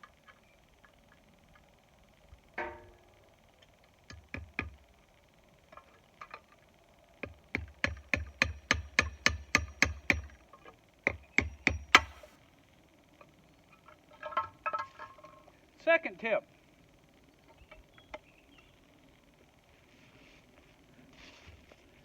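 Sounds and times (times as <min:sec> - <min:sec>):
hammer striking a nail: 0:07.5 - 0:10.4, 0:11.1 - 0:12.3.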